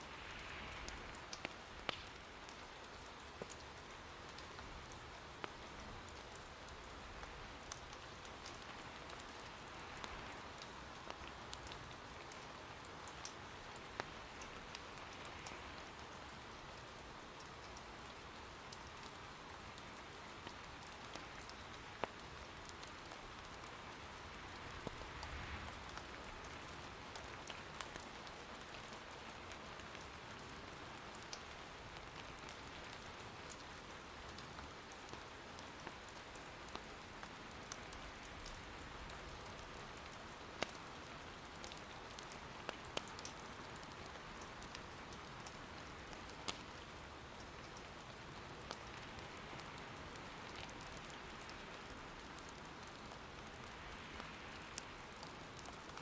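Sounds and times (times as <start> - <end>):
soft rain patter: 0.0 - 56.0
firewood crackling: 0.1 - 3.6.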